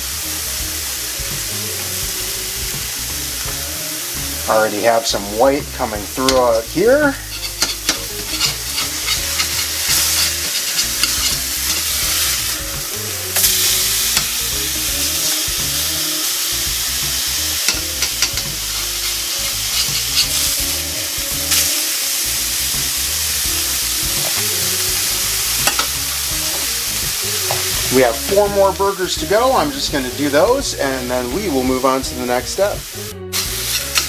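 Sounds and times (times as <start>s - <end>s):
meat patties sizzling in a pan: 0.0s - 34.0s.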